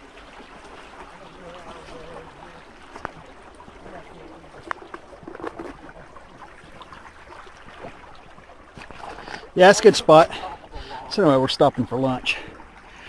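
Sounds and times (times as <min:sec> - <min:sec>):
creek running over rocks: 0:00.0 - 0:13.0.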